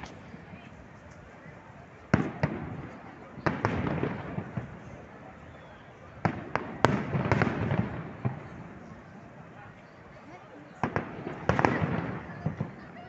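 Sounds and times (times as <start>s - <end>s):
fireworks bursting: 2.0s - 9.2s, 10.7s - 13.0s.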